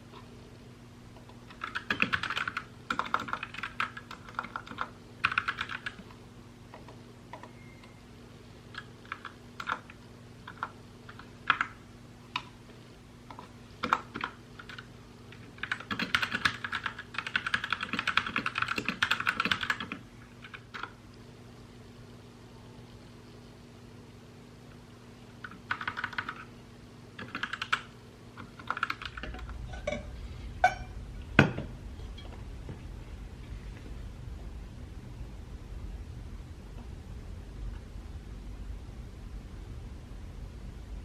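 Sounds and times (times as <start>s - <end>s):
faint low hum: 0.0s - 41.0s
mechanical keyboard typing: 1.2s - 7.5s, 8.7s - 11.8s, 13.3s - 21.0s, 25.4s - 26.5s, 27.2s - 29.5s.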